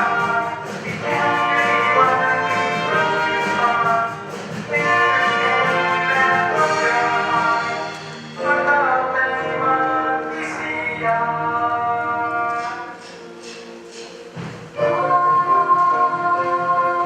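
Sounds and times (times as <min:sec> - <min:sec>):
choir singing with orchestra: 0:00.0 - 0:17.0.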